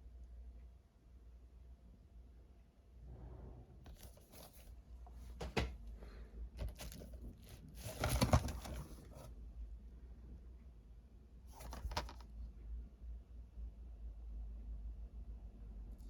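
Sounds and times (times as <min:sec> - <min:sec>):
plastic disc cases rustling and clicking: 0:06.6 - 0:09.3, 0:11.5 - 0:12.3.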